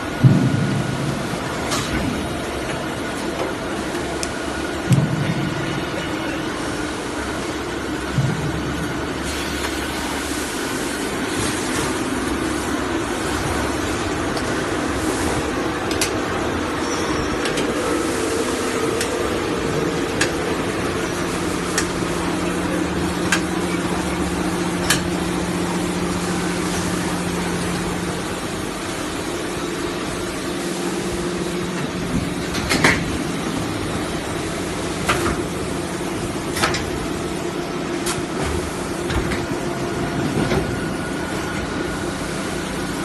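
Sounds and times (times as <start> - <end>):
air duct machine hum: 0.0 - 43.0.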